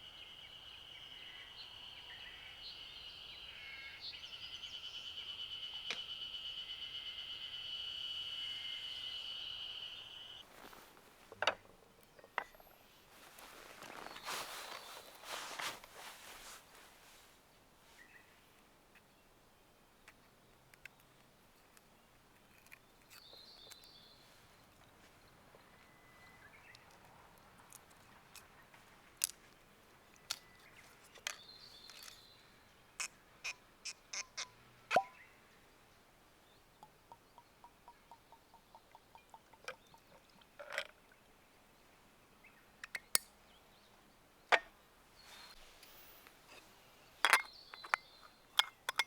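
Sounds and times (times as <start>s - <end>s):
faint high chirp: 0.0s - 10.9s, 13.3s - 16.6s, 25.1s - 27.0s, 45.2s - 48.7s.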